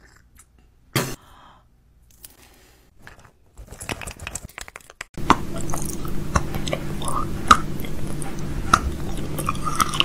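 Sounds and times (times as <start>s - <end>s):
low hum: 5.2s - 10.0s.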